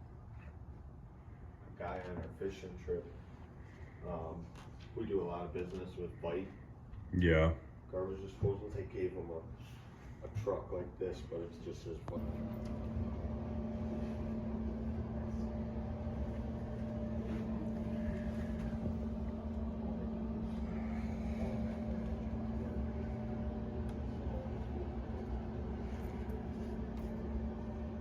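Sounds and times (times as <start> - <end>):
vehicle engine hum: 12.2 - 28.0.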